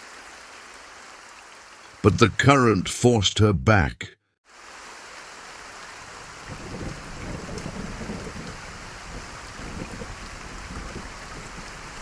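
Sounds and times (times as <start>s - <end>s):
heavy rain falling: 4.5s - 12.0s.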